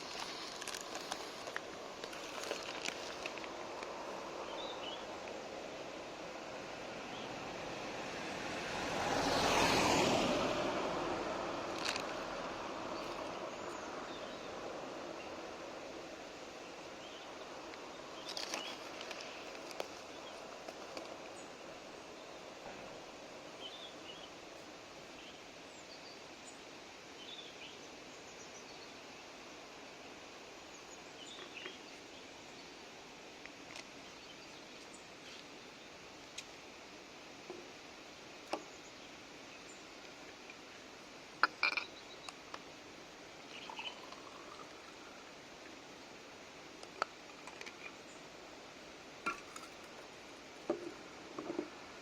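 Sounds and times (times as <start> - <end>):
outdoor background noise: 0.0 - 52.0
faint bird chirps: 43.4 - 45.1.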